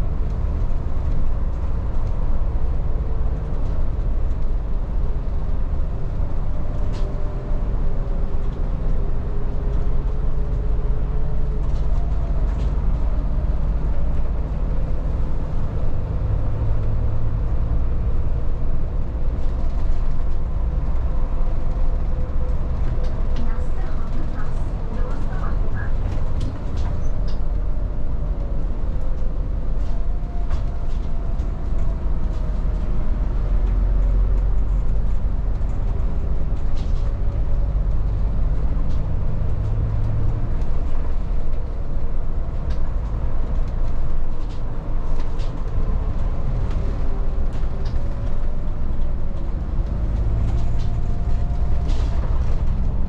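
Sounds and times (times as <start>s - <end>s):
bus body rattles and clicks: 0.0s - 53.0s
bus engine and road rumble: 0.0s - 53.0s.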